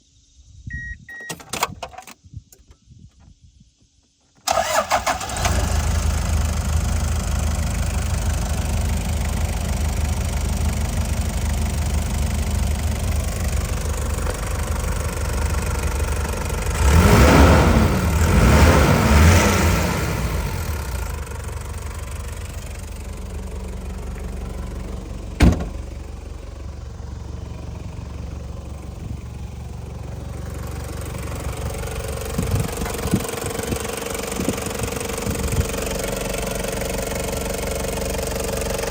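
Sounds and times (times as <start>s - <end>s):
short beep: 0.7s - 1.4s
diesel engine starting and idling: 4.4s - 38.9s
engine revving: 11.8s - 26.2s.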